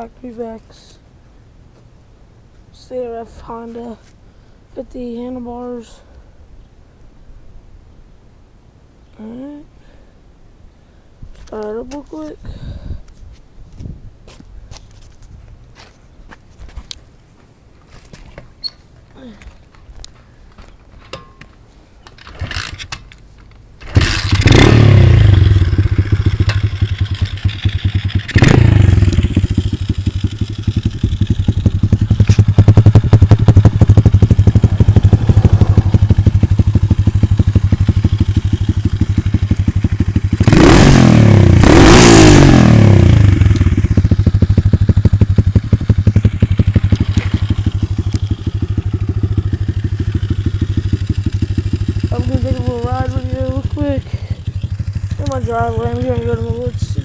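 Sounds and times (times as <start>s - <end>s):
motorcycle engine starting: 22.0s - 57.0s
motorcycle engine idling and revving: 23.7s - 57.0s.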